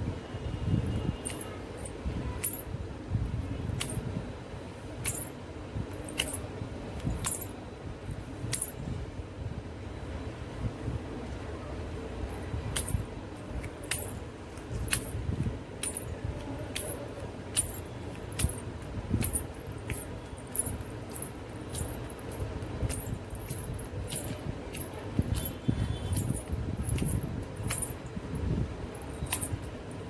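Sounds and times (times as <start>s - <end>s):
anklets jingling: 1.0s - 2.8s, 3.7s - 4.1s, 5.0s - 5.4s, 6.0s - 6.4s, 7.0s - 8.8s, 12.3s - 13.0s, 13.6s - 30.0s.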